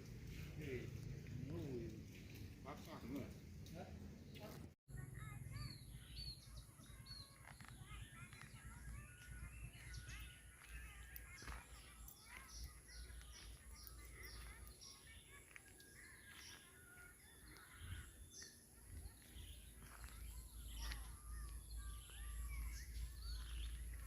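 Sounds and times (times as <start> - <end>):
small birds chirping: 0.3 - 24.0.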